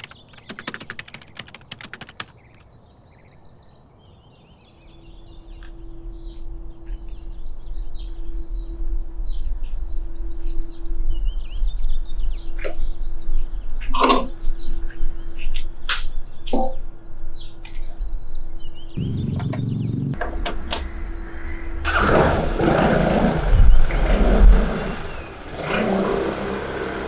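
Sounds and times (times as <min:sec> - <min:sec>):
keyboard typing clicks: 0:00.0 - 0:02.6
birds chirping: 0:04.6 - 0:27.0
low hum with held tone: 0:04.8 - 0:27.0.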